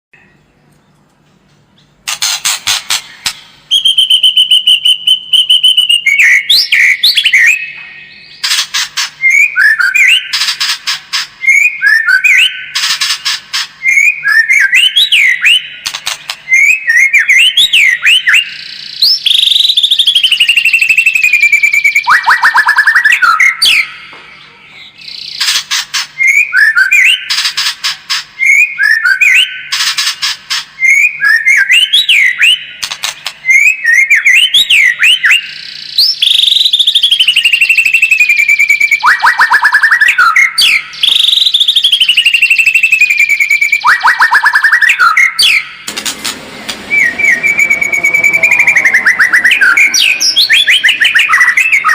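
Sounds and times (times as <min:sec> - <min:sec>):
bird singing whistled phrases: 0:03.1 - 0:08.4, 0:09.2 - 0:10.6, 0:11.4 - 0:12.8, 0:13.8 - 0:24.1, 0:26.2 - 0:27.4, 0:28.4 - 0:29.7, 0:30.8 - 0:45.8, 0:46.9 - 0:51.9
harsh rattling clicks: 0:45.9 - 0:46.8.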